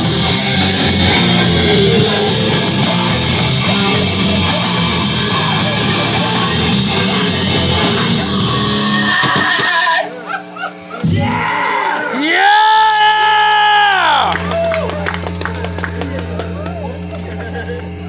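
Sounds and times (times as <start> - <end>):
heavy rock band playing: 0.0 - 9.8, 11.0 - 11.6.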